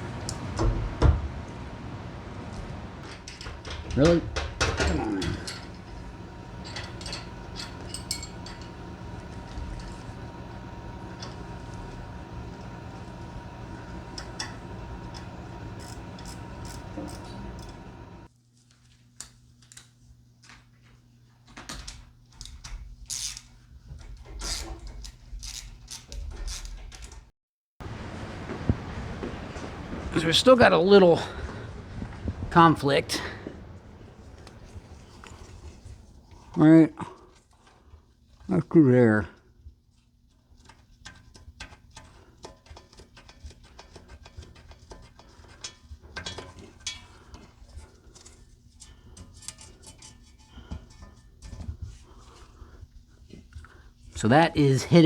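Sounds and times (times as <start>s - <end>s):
steady low hum: 0.0s - 18.3s, 27.8s - 37.7s
metal exhaust parts knocking: 3.2s - 17.9s.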